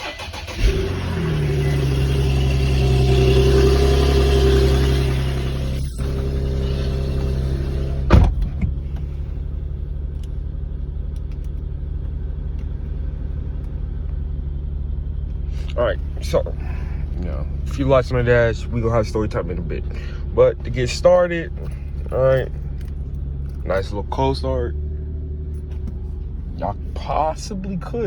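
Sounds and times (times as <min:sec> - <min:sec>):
car engine cold start idling: 0:00.0 - 0:14.4, 0:15.1 - 0:24.7
sharp thump: 0:08.0 - 0:08.8.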